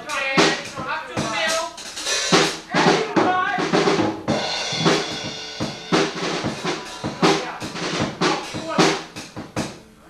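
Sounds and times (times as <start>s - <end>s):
bass drum hits: 2.9s - 9.6s
cymbals ringing: 4.3s - 9.2s.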